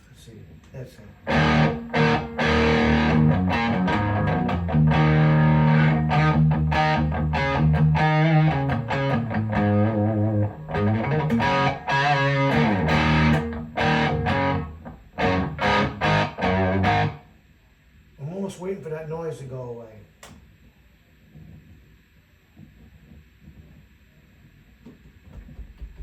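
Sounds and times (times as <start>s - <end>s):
distorted electric guitar: 1.2s - 17.3s.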